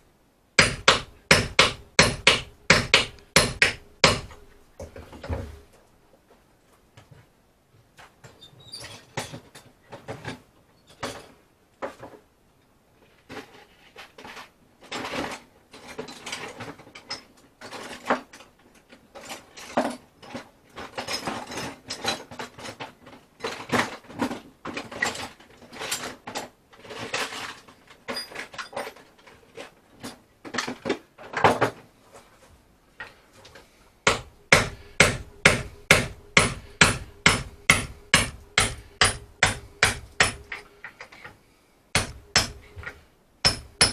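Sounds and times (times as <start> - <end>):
hammer blows: 0.6 - 4.4, 34.0 - 40.6, 42.0 - 43.9
hand tools clattering and scraping wood: 0.6 - 7.3, 8.0 - 12.3, 13.0 - 43.9.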